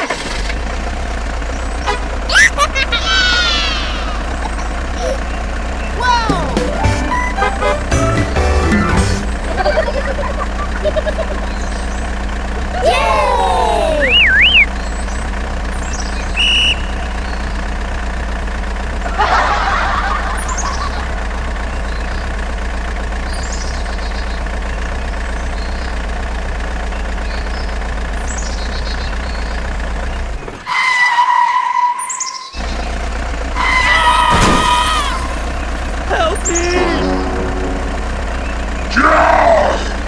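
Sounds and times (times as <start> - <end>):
vehicle engine humming: 0.0 - 40.0
birds chirping: 1.0 - 18.1, 21.6 - 30.6, 32.0 - 40.0
held steady tone: 14.0 - 14.7, 36.5 - 38.9.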